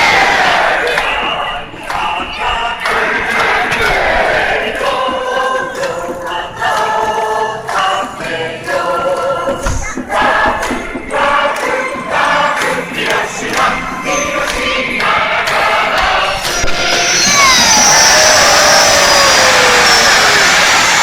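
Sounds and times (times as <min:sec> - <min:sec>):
stadium crowd singing in unison: 0:00.0 - 0:21.0.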